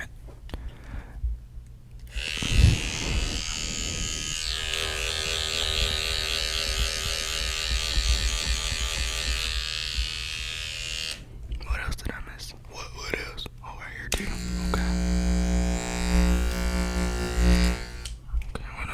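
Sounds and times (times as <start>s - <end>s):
electric hair clippers buzzing: 2.1s - 11.3s, 14.2s - 18.2s.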